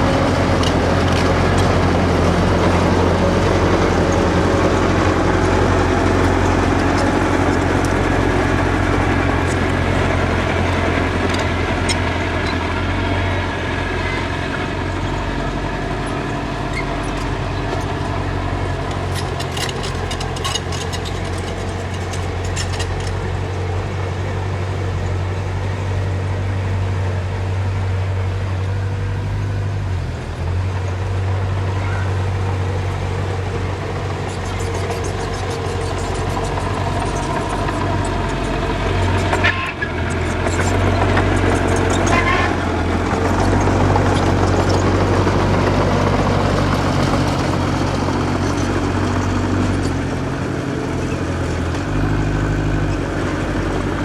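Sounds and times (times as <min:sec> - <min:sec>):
heavy machine engine droning: 0:00.0 - 0:54.0
metallic clicks and clanks: 0:18.9 - 0:23.2.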